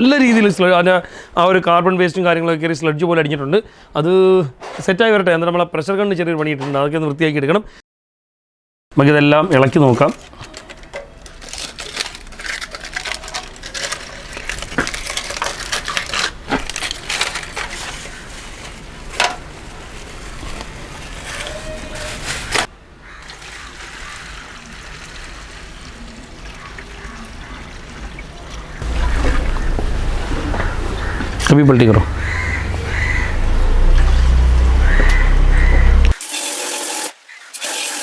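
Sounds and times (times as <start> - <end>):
metal parts clinking: 10.1 - 17.9
liquid sloshing and splashing: 10.5 - 19.8, 23.2 - 31.5.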